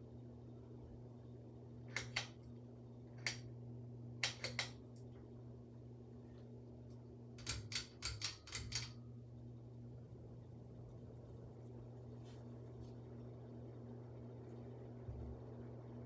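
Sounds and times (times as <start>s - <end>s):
ceiling fan motor hum: 0.0s - 16.0s
sharp clicks: 1.9s - 2.4s, 3.2s - 3.5s, 4.2s - 4.8s, 7.4s - 9.0s.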